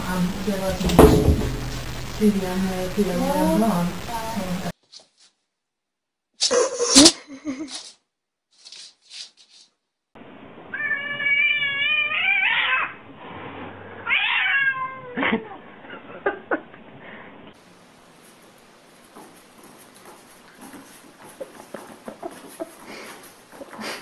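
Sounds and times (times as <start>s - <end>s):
sharp knocks: 0.8s - 1.9s
cat yowling: 10.7s - 13.0s, 14.0s - 15.2s.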